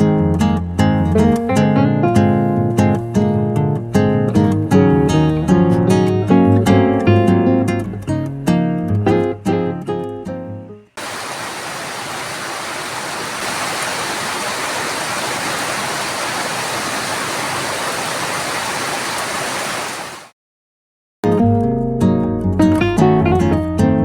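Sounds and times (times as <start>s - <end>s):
heavy rain hiss: 11.0s - 20.3s.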